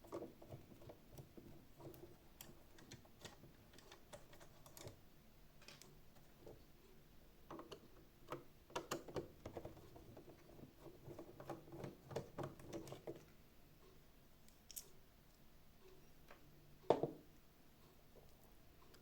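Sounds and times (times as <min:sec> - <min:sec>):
plastic parts clicking and tapping: 0:00.1 - 0:05.0, 0:05.6 - 0:06.7, 0:07.4 - 0:13.3.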